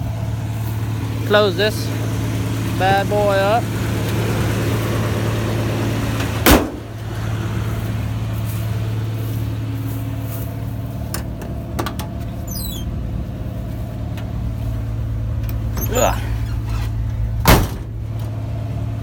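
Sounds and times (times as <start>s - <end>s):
truck engine idling: 0.0s - 19.0s
truck door slamming: 6.2s - 7.0s, 15.6s - 18.3s
short squeak: 12.4s - 12.9s, 15.8s - 17.0s.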